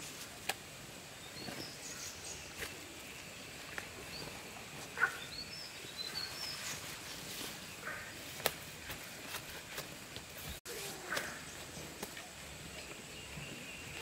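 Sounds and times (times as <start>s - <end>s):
small birds chirping: 1.1s - 8.6s, 10.3s - 14.0s.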